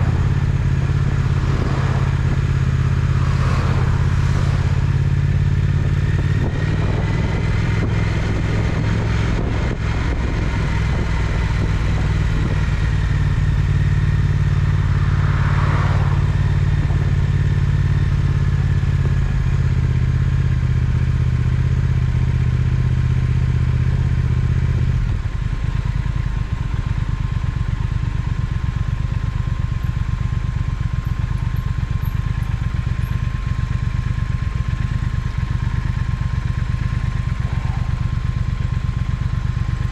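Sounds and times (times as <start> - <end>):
vehicle passing whoosh: 0.0 - 7.6, 14.0 - 18.2, 37.1 - 38.3
motorcycle engine running: 0.0 - 39.9.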